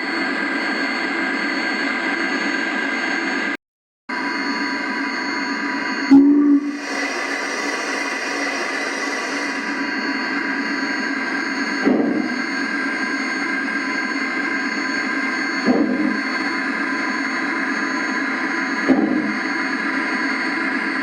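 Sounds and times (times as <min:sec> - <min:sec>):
steam hiss from speaker: 0:06.6 - 0:09.8.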